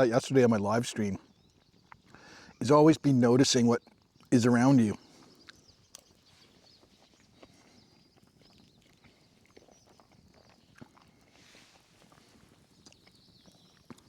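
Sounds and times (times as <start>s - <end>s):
faint clicks and ticks: 5.3s - 6.2s.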